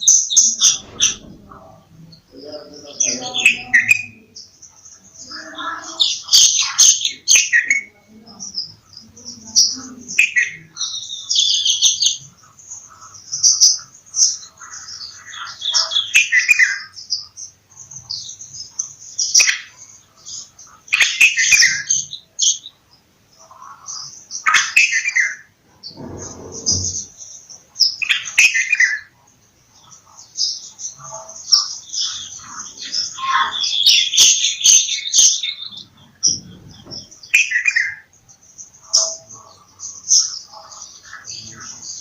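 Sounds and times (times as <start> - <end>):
bulbuls calling and chattering: 0.0 - 42.0
low rumble: 0.6 - 2.6.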